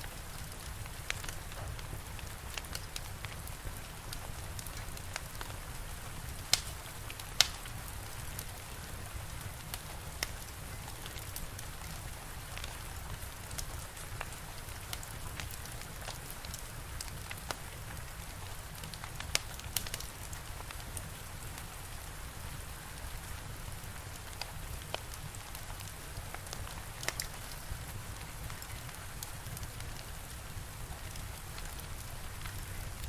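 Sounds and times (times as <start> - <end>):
fire crackling and popping: 0.0 - 33.0
steady rain hiss: 0.0 - 33.0.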